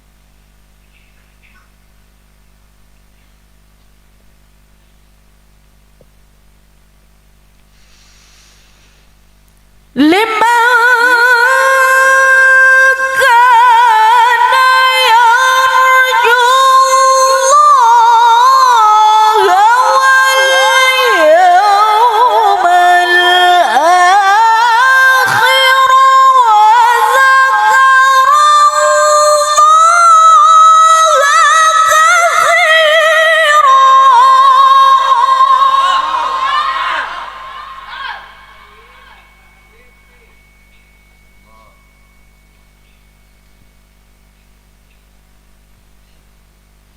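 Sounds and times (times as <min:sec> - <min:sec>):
woman reciting melodically: 0:09.9 - 0:40.4.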